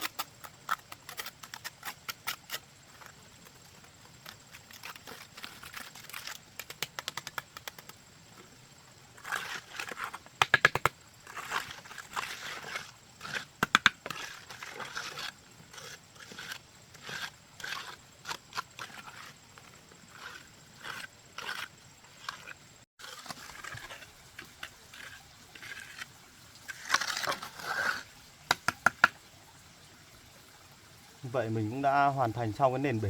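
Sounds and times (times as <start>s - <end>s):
hand tools scraping and tapping: 0.0s - 8.0s, 9.3s - 22.6s, 26.8s - 29.2s.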